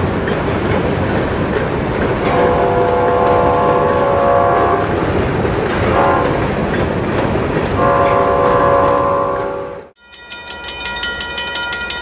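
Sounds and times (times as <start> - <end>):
freight train rumbling over bridge: 0.0 - 12.0
train horn: 2.2 - 5.0, 5.9 - 6.4, 7.8 - 10.0.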